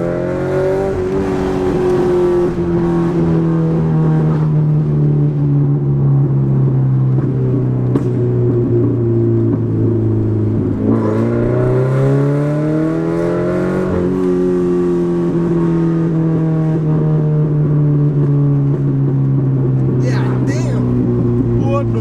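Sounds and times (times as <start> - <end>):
loud car engine accelerating: 9.4 - 20.1.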